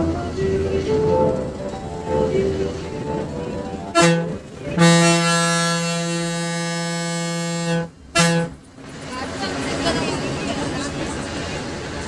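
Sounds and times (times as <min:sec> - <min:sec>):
bus air horn blasts: 0:03.9 - 0:08.6.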